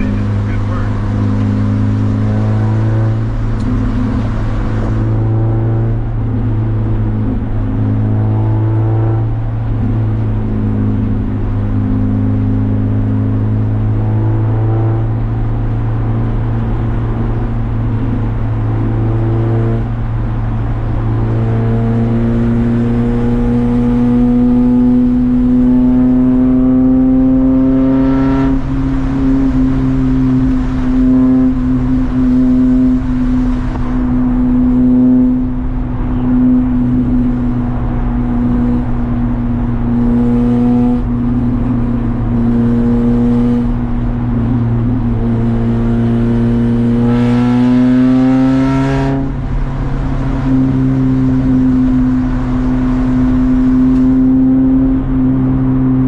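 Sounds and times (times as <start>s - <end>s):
steady low drone: 0.0s - 27.8s
race car engine accelerating: 0.0s - 56.0s.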